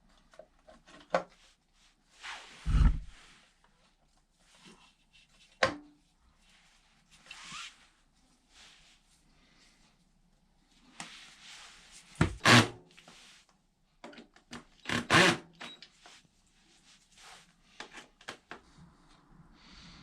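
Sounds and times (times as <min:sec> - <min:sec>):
scraping and rubbing: 0:02.2 - 0:03.4.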